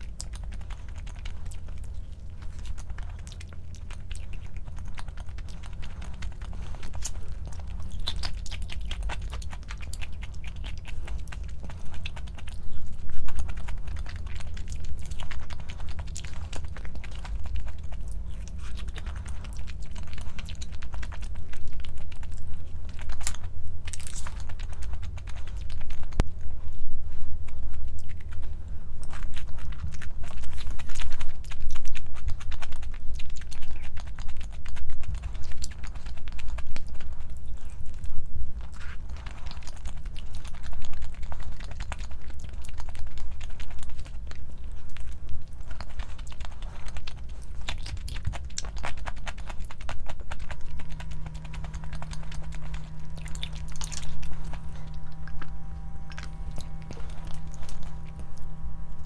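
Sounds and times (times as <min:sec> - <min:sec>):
crunchy chewing: 0:00.0 - 0:59.0
steady low hum: 0:00.0 - 0:59.0
steady low tone: 0:37.0 - 0:59.0.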